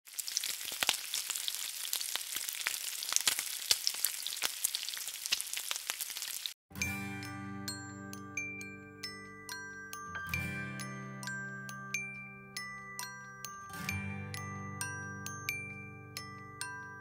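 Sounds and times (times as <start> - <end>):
food sizzling in hot oil: 0.1 - 6.6
chiming mallet percussion melody: 6.8 - 17.0.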